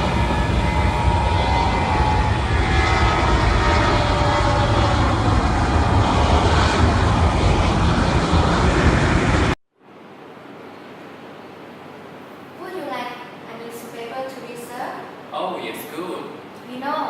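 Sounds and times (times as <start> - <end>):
airliner engine rumble: 0.0 - 9.6.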